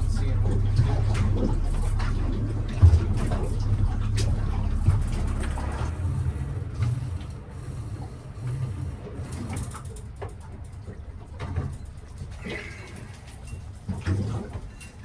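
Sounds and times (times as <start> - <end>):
boat motor running: 0.0 - 10.0.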